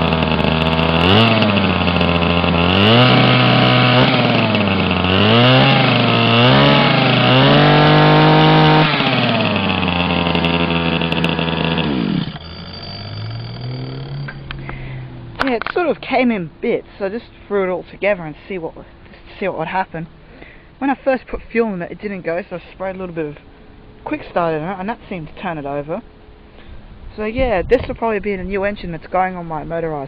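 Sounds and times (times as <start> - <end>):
small two-stroke engine revving: 0.0 - 17.3.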